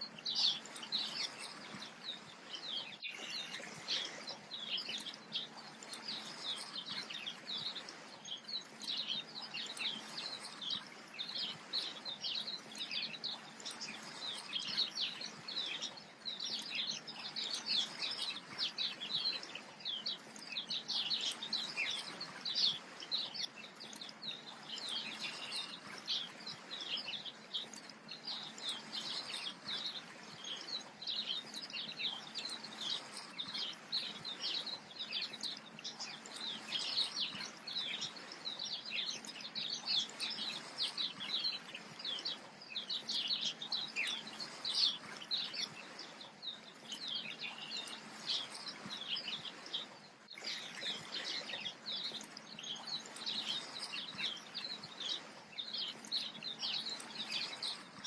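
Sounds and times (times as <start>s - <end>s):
many small birds chirping: 0.0s - 58.0s.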